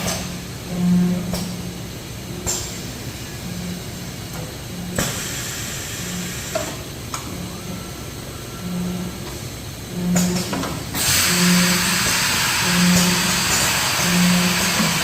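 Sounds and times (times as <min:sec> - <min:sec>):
hiss: 0:05.0 - 0:06.8, 0:11.0 - 0:15.0
packaging machine humming: 0:07.4 - 0:15.0.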